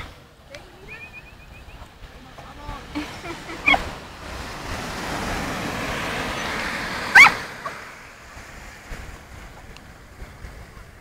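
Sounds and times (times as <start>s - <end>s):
surf breaking on beach: 0.0s - 11.0s
dog barking: 7.1s - 7.8s.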